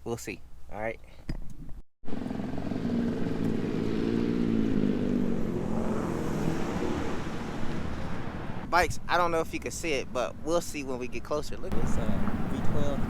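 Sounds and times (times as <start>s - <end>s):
vehicle engine running: 2.1s - 8.6s, 11.7s - 13.0s.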